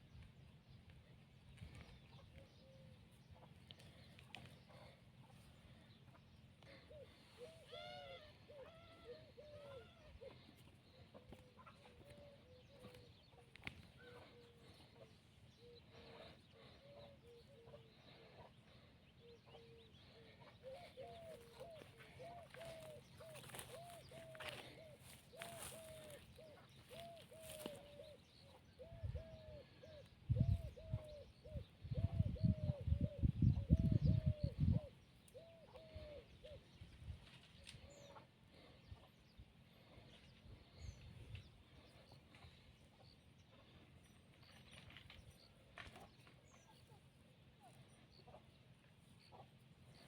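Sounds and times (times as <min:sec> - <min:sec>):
bird hooting call: 0:02.1 - 0:39.2
chickens clucking: 0:03.1 - 0:29.5, 0:45.8 - 0:50.0.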